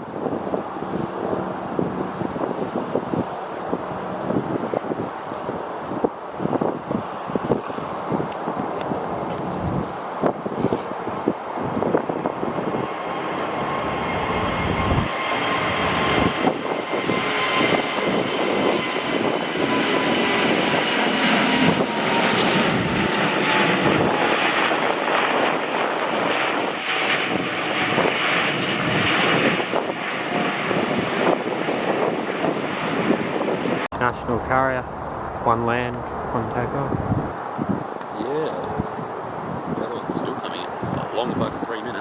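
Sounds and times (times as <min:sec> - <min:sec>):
airliner engines roaring: 0:00.0 - 0:42.0
high engine whine: 0:00.2 - 0:24.7, 0:33.6 - 0:37.6.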